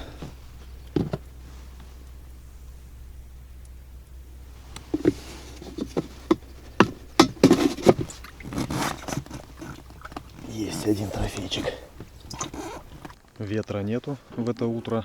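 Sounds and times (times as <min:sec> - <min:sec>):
knocks and clatter in a boat: 0:00.0 - 0:02.0, 0:04.5 - 0:15.0
scraping rustle: 0:04.4 - 0:15.0.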